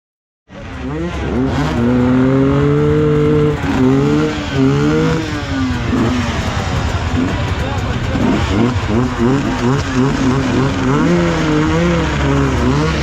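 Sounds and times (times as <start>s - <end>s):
motorcycle engine revving: 0.5s - 13.0s.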